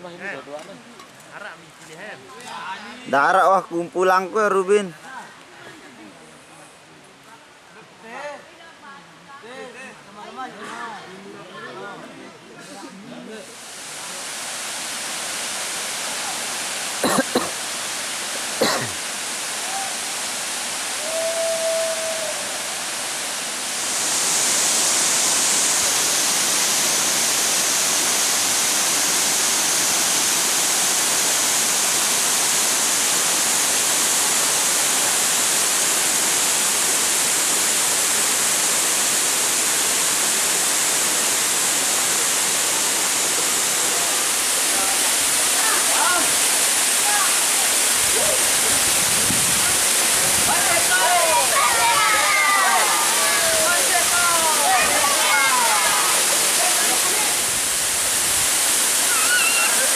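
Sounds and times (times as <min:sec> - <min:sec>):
waterfall rushing: 0:13.3 - 0:59.9.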